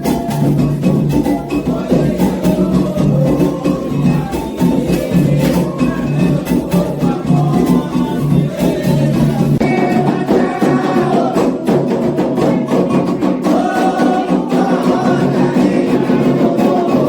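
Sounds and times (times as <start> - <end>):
hand drums and percussion: 0.0 - 17.0
group of voices chanting: 1.6 - 17.0.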